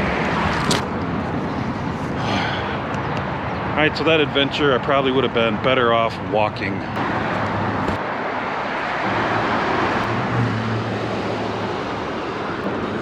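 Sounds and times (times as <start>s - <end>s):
vehicle passing: 6.1s - 13.0s.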